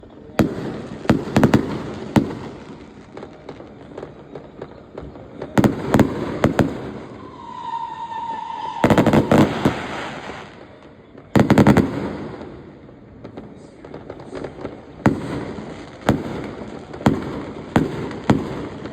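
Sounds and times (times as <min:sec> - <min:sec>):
firework crackling: 0:00.0 - 0:18.9
fireworks bangs: 0:00.0 - 0:18.9
firework whistle: 0:05.6 - 0:10.6.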